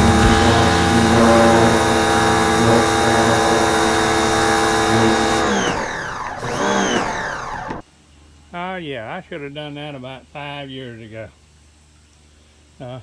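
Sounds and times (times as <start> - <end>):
water spray hissing: 0.0 - 5.4
pressure washer motor running: 0.0 - 7.8.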